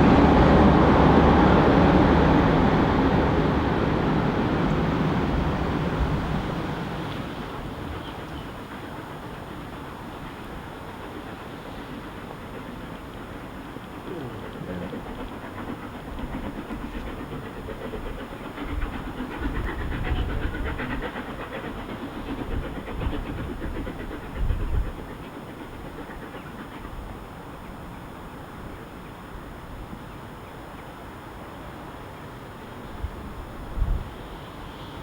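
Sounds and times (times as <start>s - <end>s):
wind buffeting microphone: 0.0s - 9.5s, 15.0s - 26.3s, 33.0s - 34.3s
steam locomotive exhaust: 0.0s - 35.0s
train rumble: 0.0s - 35.0s.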